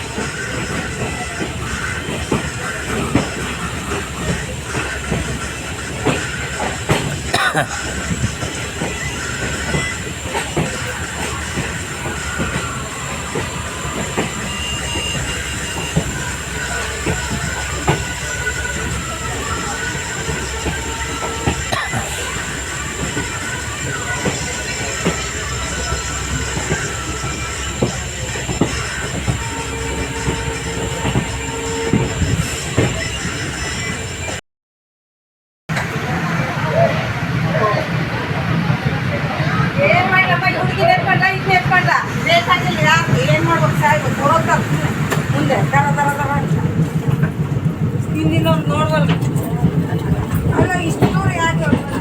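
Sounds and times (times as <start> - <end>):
wheels clacking over rail joints: 0.0 - 34.3, 43.0 - 52.0
train coach rumbling on track: 0.0 - 34.4, 35.7 - 52.0
train horn: 9.7 - 34.3
wheels clicking over rail joints: 43.2 - 52.0.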